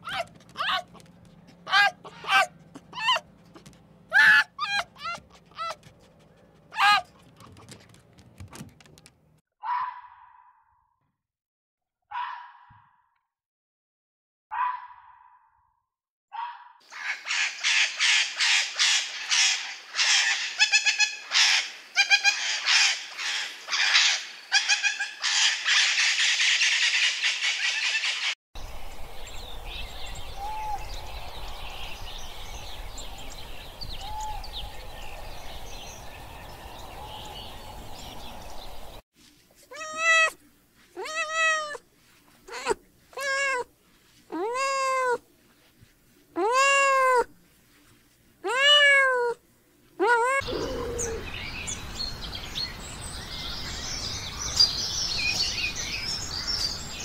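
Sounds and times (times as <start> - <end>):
young cat meowing: 39.7 - 40.4, 41.0 - 41.8, 42.5 - 43.7, 44.3 - 45.2, 46.4 - 47.3, 48.4 - 49.4, 50.0 - 51.2.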